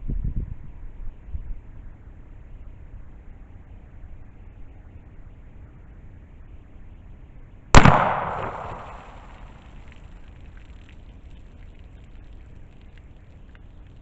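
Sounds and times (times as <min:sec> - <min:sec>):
gunshot with echo: 0:07.8 - 0:09.6.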